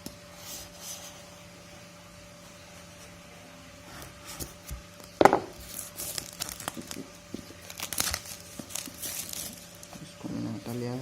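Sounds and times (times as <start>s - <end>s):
packaging crinkling and tearing: 5.5s - 10.0s.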